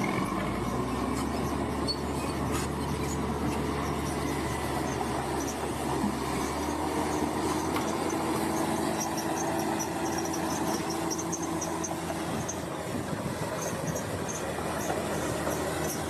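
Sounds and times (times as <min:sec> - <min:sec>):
bulldozer diesel engine: 0:00.0 - 0:16.0
short high squeaks: 0:00.1 - 0:12.7.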